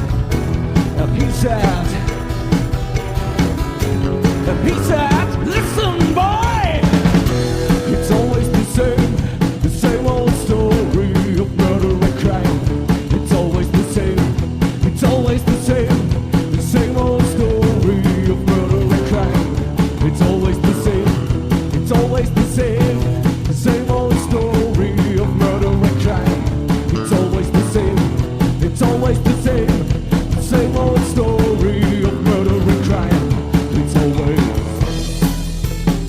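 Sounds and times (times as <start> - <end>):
rock band playing instrumental: 0.0 - 36.0.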